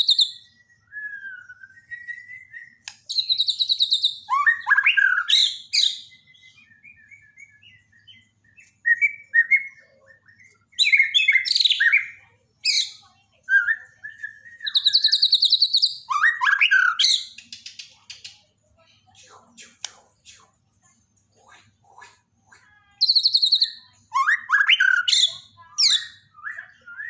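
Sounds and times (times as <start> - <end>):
soft whistled bird notes: 0.0 - 12.2, 13.5 - 17.6
bird singing trilled phrases: 0.0 - 27.0.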